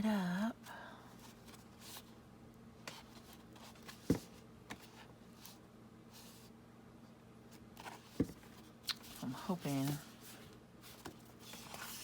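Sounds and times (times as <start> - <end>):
paper rustling: 7.8 - 12.0.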